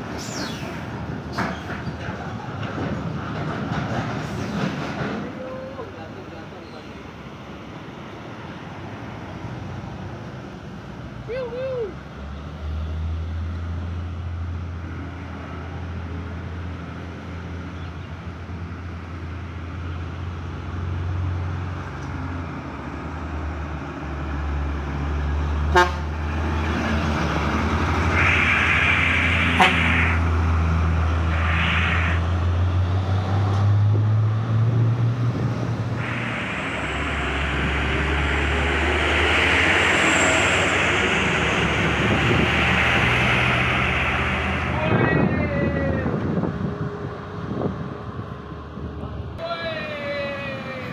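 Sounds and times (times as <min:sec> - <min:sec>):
diesel truck engines droning: 0:00.0 - 0:50.9
hiss: 0:27.5 - 0:33.1, 0:35.9 - 0:45.6.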